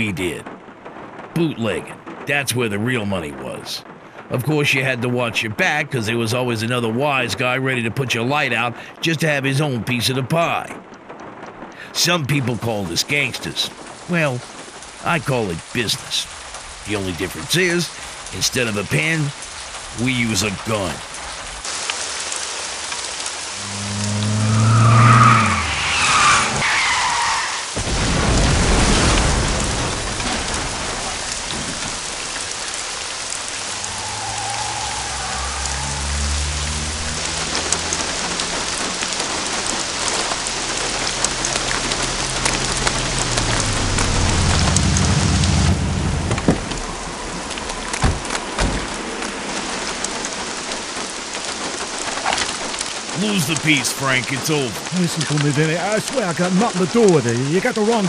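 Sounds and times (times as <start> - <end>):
thunder rumbling: 0.0 - 5.5, 19.1 - 51.0
heavy rain on a street: 0.0 - 58.0
car engine approaching: 23.5 - 26.6, 33.3 - 47.6.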